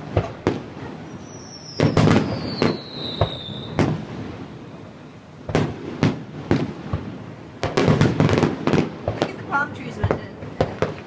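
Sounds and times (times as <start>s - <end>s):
fireworks bangs echoing: 0.0s - 11.0s
high whistle falling in pitch: 1.1s - 3.8s.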